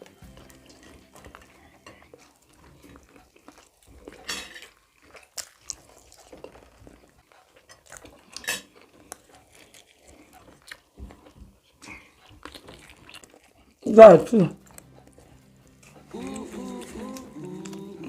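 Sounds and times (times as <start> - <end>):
cutlery clinking on plates: 4.0 - 4.7, 8.4 - 8.7.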